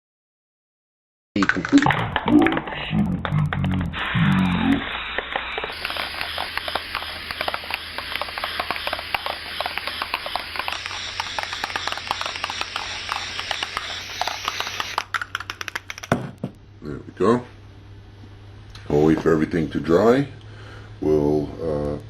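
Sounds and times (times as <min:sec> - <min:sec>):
rapid clicks: 0:01.4 - 0:16.1
spray paint can hissing: 0:04.0 - 0:16.1.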